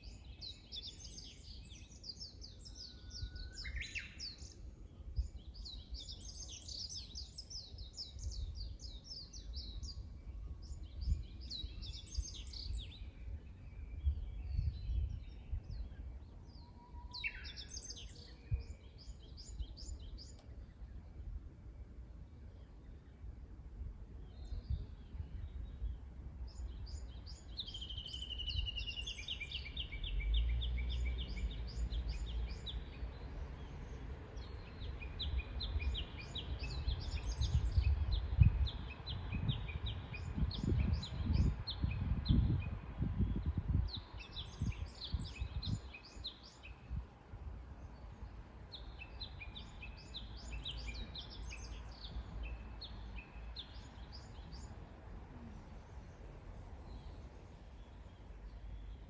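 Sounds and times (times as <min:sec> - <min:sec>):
low rumbling gusts: 0:08.1 - 0:16.4, 0:20.9 - 0:59.0
songbirds trilling: 0:24.2 - 0:59.0.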